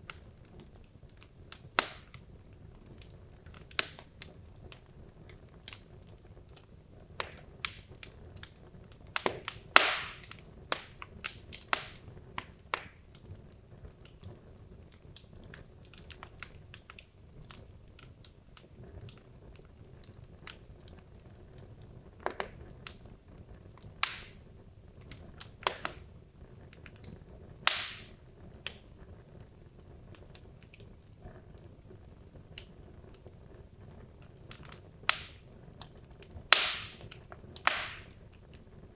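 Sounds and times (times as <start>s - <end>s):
faint low background hum: 0.0s - 38.9s
logs crackling in fireplace: 0.0s - 38.9s.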